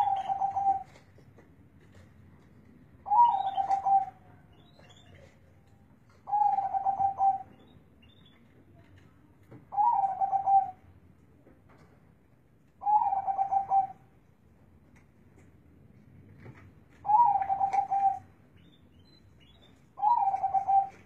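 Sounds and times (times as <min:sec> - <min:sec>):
dove cooing: 0:00.0 - 0:01.0, 0:03.0 - 0:04.2, 0:06.2 - 0:07.5, 0:09.7 - 0:10.8, 0:12.8 - 0:14.0, 0:17.0 - 0:18.3, 0:20.0 - 0:21.0.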